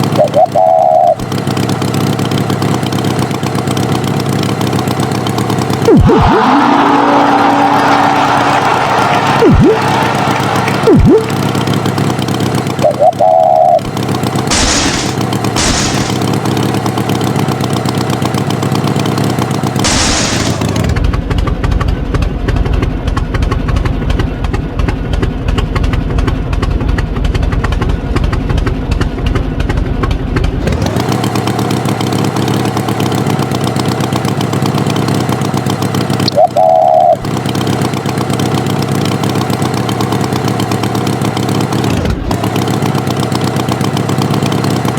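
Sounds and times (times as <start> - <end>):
tractor engine running: 0.0 - 44.9
wavering horn-like tones: 5.9 - 11.6.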